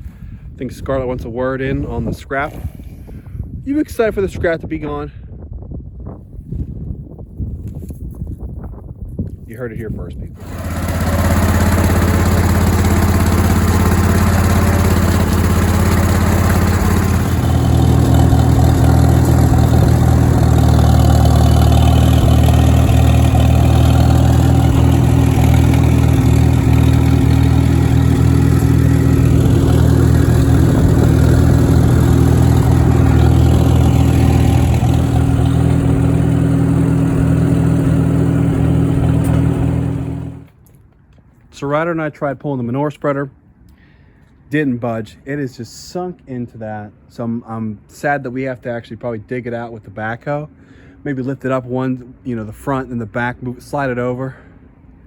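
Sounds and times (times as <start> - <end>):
farm machinery engine running: 10.4 - 40.5.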